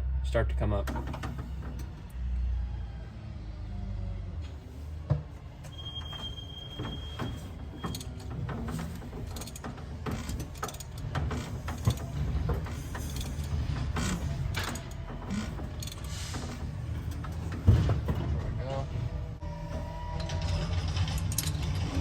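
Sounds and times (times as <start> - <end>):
mechanical clicks and rattles: 7.8 - 17.6.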